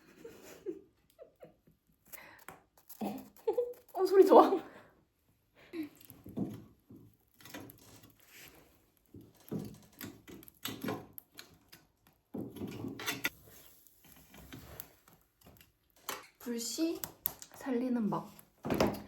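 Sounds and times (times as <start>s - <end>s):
firewood knocking and clacking: 6.0s - 17.6s.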